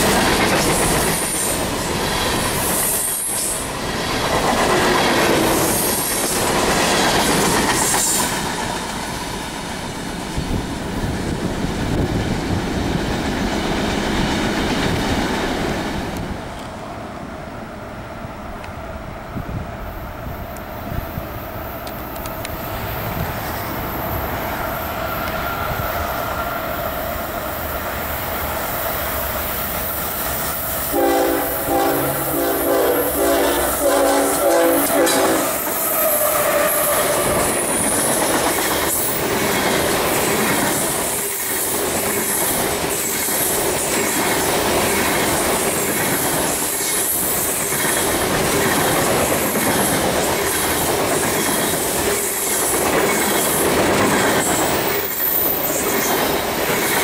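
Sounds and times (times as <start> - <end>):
train wheels clickety-clack: 0.0 - 16.8, 21.8 - 57.0
train horn blasts: 30.9 - 37.7.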